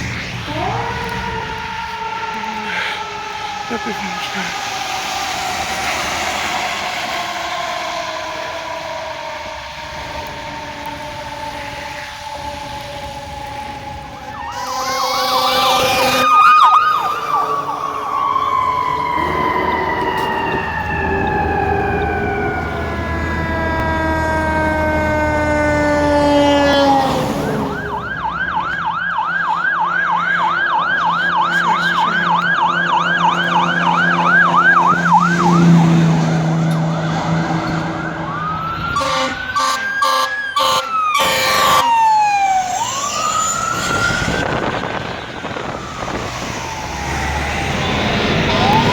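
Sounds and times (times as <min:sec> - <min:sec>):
siren wailing: 0:00.0 - 0:48.9
siren yelping: 0:00.0 - 0:48.9
truck engine: 0:00.0 - 0:48.9
sharp horn blasts: 0:14.5 - 0:16.3, 0:39.0 - 0:41.8.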